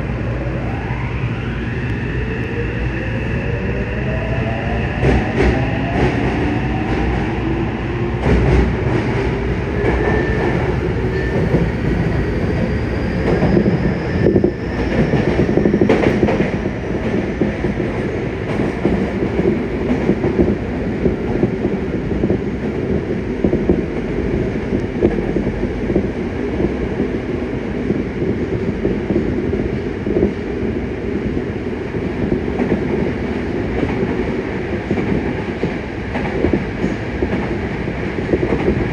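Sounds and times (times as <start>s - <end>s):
train inverter whining: 0.0s - 28.1s.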